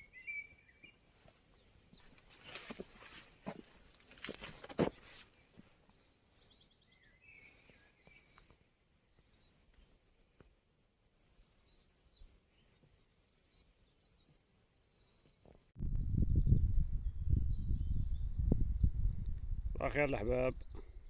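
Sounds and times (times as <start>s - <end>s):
small birds chirping: 0.0s - 15.7s.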